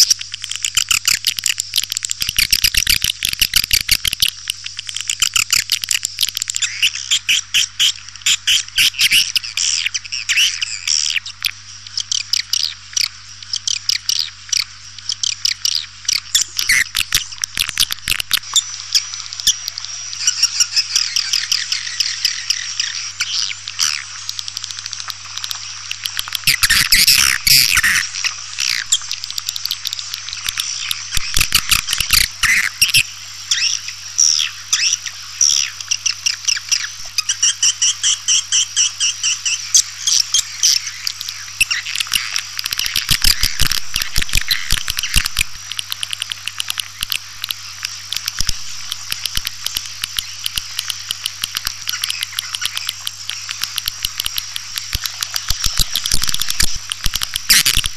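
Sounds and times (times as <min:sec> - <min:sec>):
bird twittering chirps: 0:00.0 - 0:57.9
low electrical hum: 0:00.0 - 0:57.9
fast clicks: 0:23.7 - 0:33.0, 0:40.6 - 0:57.9.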